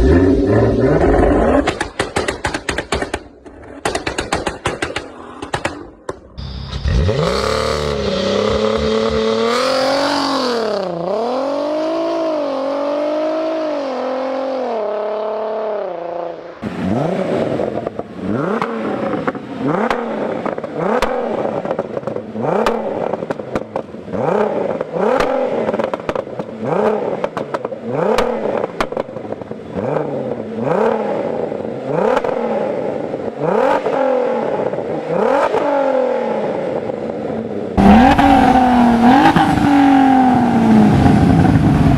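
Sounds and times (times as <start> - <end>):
car engine revving: 0.0 - 2.1, 5.0 - 37.1, 37.7 - 41.9
exhaust crackles and pops: 24.8 - 29.6.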